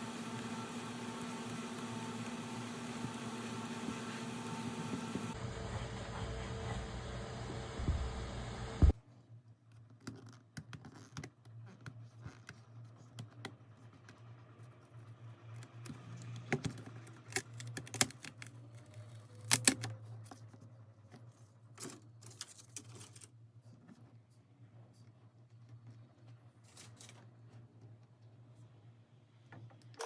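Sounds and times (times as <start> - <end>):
low steady hum: 2.6 - 9.0.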